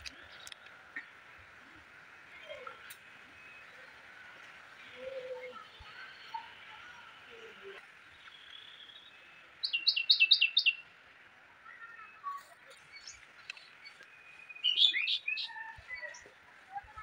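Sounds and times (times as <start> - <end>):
bird chirping: 4.9 - 11.0, 11.6 - 17.0.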